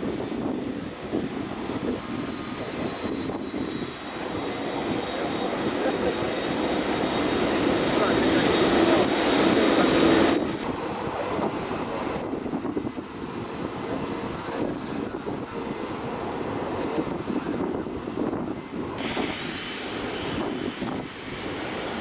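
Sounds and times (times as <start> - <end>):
jet engine rumbling: 0.0 - 22.0
high thin whine rising: 19.0 - 22.0.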